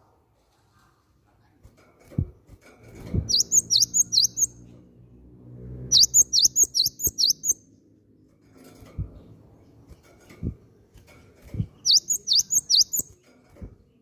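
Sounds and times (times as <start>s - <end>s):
bird singing high sweeping notes: 3.3s - 4.6s, 5.9s - 7.6s, 11.8s - 13.1s.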